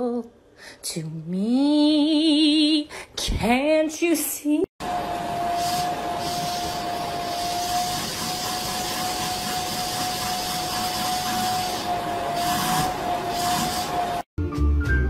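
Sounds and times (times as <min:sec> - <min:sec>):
vacuum cleaner running: 0:04.8 - 0:14.3.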